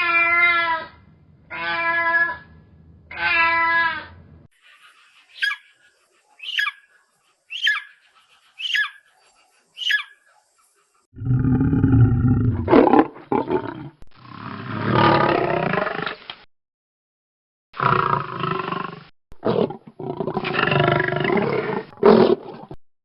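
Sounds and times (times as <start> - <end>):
big cat roaring: 11.2 - 16.2, 17.8 - 22.7.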